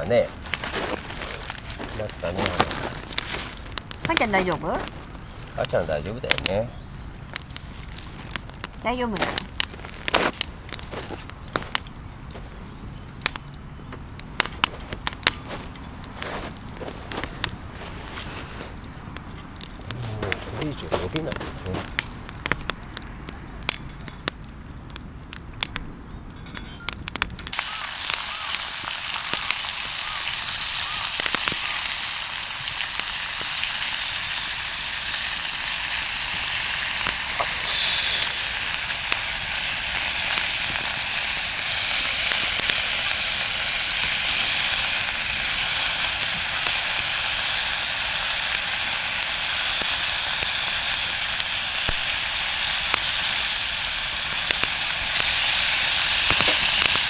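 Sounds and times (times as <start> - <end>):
meat sizzling on a grill: 0.0 - 11.8, 19.9 - 21.9, 27.5 - 57.0
campfire crackling and popping: 0.0 - 57.0.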